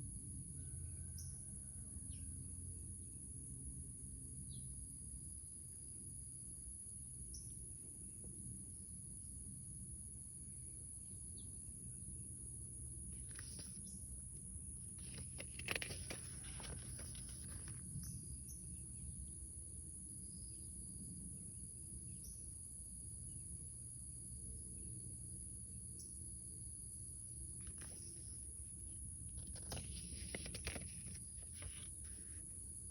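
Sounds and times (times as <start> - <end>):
paper rustling: 13.2 - 13.8, 15.0 - 17.8, 27.6 - 28.3, 29.4 - 32.4.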